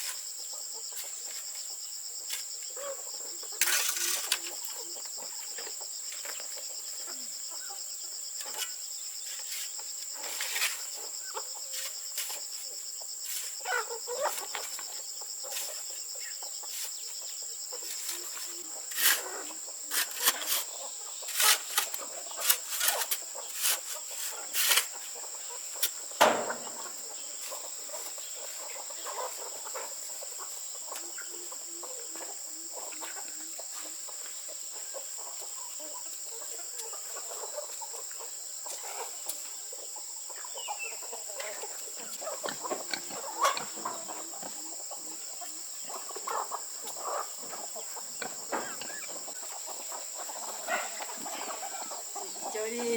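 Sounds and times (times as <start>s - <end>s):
chickens clucking: 0.0s - 52.9s
sharp clicks and knocks: 26.2s - 27.0s.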